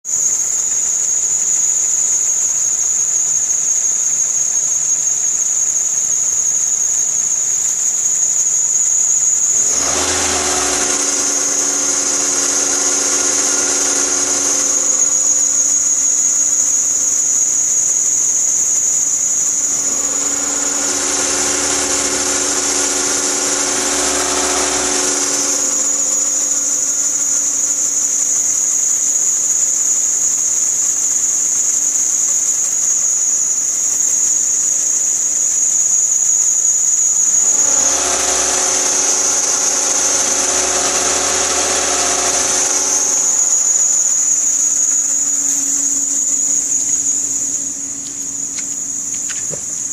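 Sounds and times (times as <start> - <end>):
drive belt squealing: 0.1 - 49.9
car engine running: 9.4 - 17.3, 19.2 - 28.3, 37.2 - 47.6.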